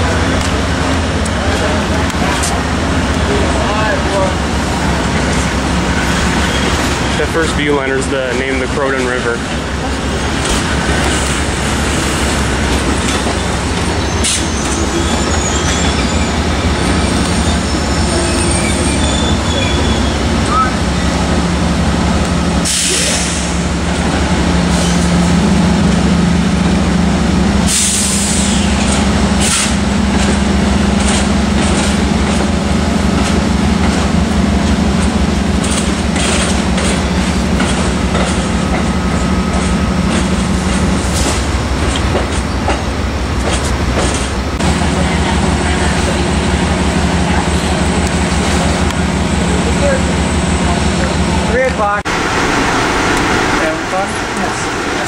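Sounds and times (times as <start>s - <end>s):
train wheels rumbling on rail: 0.0s - 55.0s
hissing or wheel squeal: 13.4s - 20.8s.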